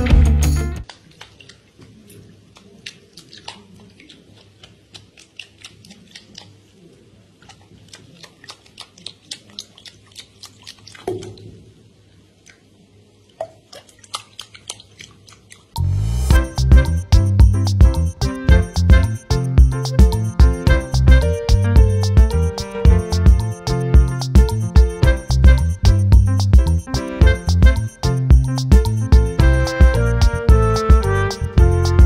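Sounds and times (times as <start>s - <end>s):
water splashing and dripping: 0.8s - 32.0s.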